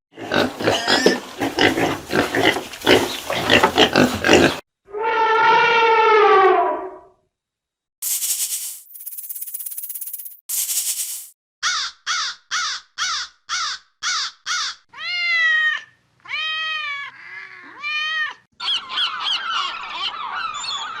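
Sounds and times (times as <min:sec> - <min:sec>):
brief hissing noise: 0:08.0 - 0:11.4
bird calls: 0:18.6 - 0:21.0.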